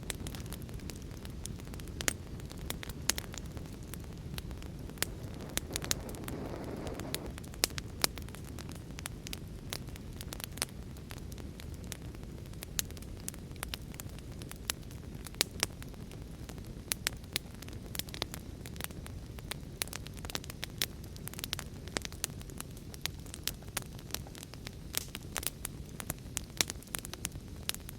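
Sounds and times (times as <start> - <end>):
rushing of flames: 0.0 - 27.9
wood crackling and popping: 0.0 - 27.9.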